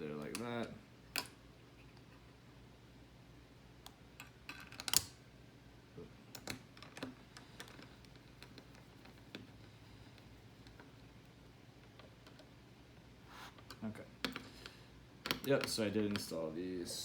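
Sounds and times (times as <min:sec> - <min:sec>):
clicks and taps of small parts: 0:13.6 - 0:14.5, 0:15.2 - 0:16.3.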